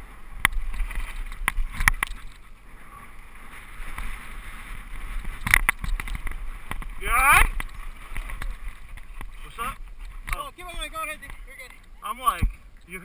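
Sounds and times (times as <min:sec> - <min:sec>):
tyre and wind rushing: 0:00.0 - 0:12.8
bike knocking and rattling: 0:00.4 - 0:02.4, 0:05.1 - 0:12.6.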